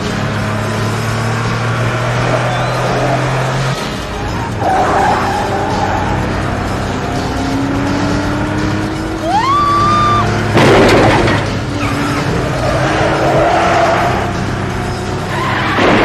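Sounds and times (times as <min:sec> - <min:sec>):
background music: 0:00.0 - 0:16.0
car engines running: 0:00.0 - 0:16.0
tyre squeal: 0:02.2 - 0:03.4, 0:15.3 - 0:15.9.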